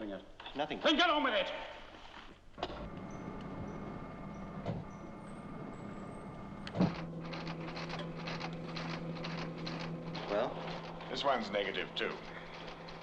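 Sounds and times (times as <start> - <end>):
machinery electrical hum: 2.5 - 13.0
machine clunk: 2.6 - 13.0
fast irregular clicking: 6.7 - 13.0.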